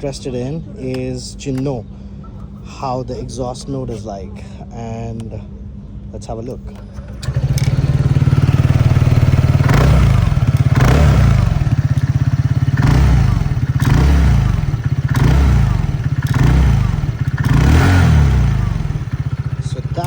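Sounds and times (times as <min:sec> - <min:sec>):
scooter engine idling and revving: 0:06.8 - 0:20.0.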